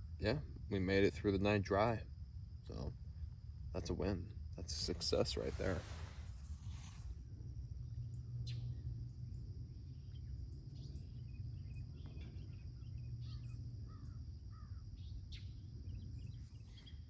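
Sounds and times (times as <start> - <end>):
low rumble: 0.0 - 13.2.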